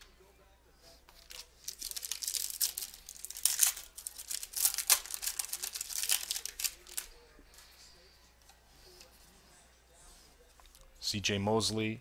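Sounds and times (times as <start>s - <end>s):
plastic wrapper tearing and crumpling: 1.2s - 7.1s.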